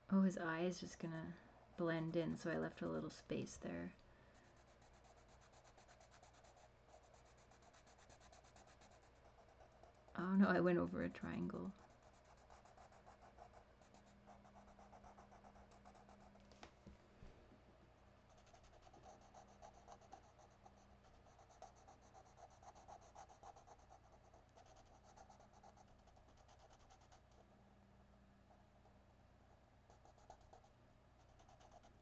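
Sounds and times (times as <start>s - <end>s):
pen scratching on paper: 4.5s - 10.1s, 11.8s - 16.4s, 18.3s - 27.4s, 29.9s - 32.0s.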